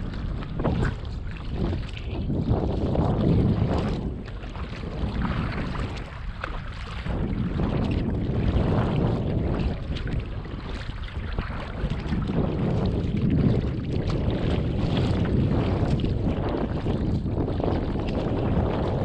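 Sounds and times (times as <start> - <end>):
water splashing against hull: 0.0 - 19.0
wind buffeting microphone: 0.0 - 19.0.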